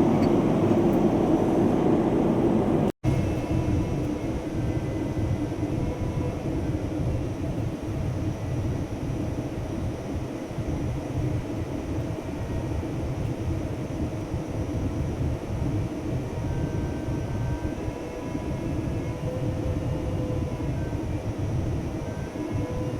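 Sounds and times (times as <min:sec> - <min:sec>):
jet engine cabin rumble: 0:00.0 - 0:22.9.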